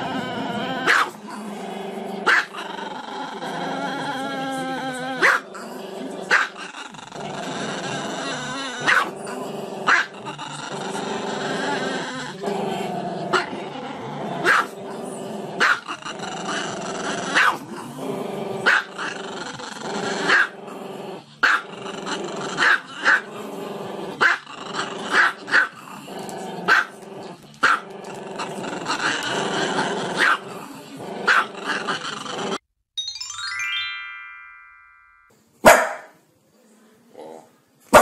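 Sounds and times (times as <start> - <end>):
dog yipping: 35.7 - 36.1.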